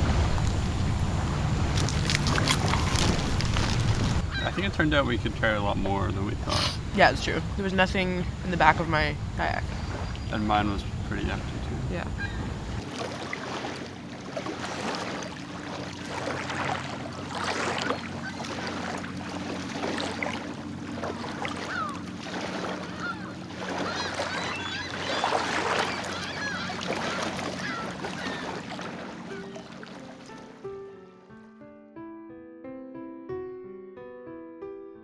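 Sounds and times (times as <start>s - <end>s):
low hum: 0.0s - 13.0s
geese honking: 2.1s - 5.6s, 6.5s - 12.8s, 21.2s - 29.7s.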